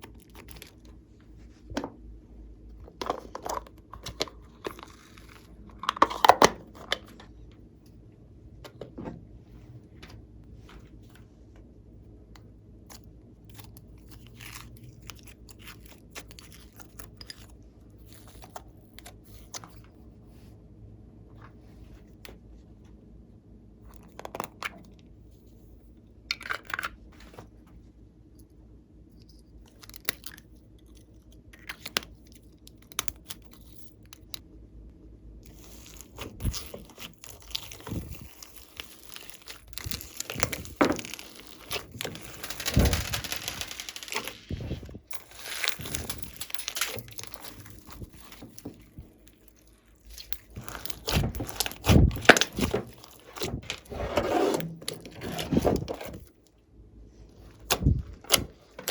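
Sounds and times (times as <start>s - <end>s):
slime crackling and popping: 35.5s - 53.5s.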